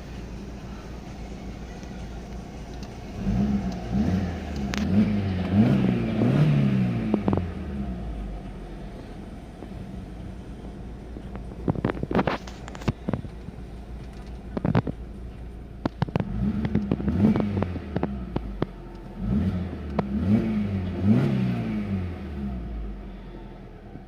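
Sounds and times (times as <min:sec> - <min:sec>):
car engine revving: 0:00.0 - 0:23.6
sharp clicks and crackles: 0:01.8 - 0:03.9, 0:04.5 - 0:05.6, 0:11.2 - 0:19.2.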